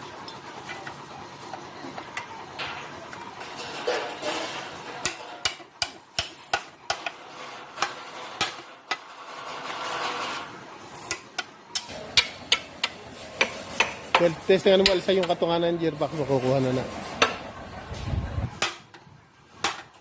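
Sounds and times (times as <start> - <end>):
metal tools clinking and tapping: 2.2 - 10.5
metal scraping: 2.5 - 11.9.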